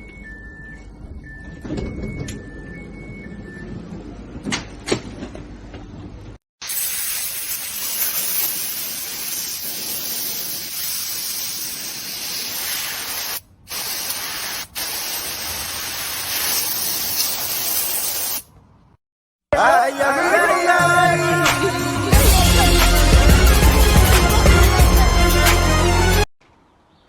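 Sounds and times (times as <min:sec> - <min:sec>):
spraying hiss: 0:06.6 - 0:18.4.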